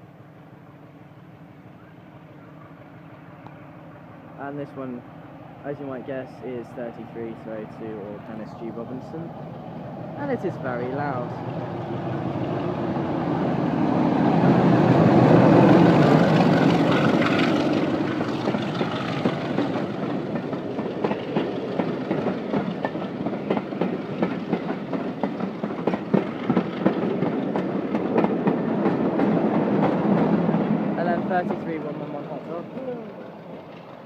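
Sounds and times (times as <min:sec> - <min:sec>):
diesel locomotive passing: 0:00.0 - 0:34.0
wheels clicking over rail joints: 0:15.4 - 0:34.0.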